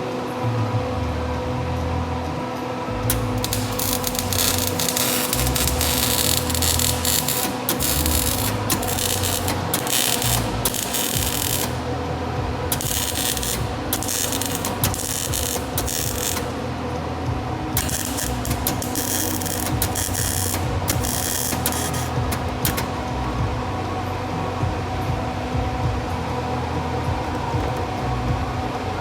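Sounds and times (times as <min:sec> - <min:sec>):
welding arc crackling: 0:03.1 - 0:16.7, 0:17.6 - 0:23.5.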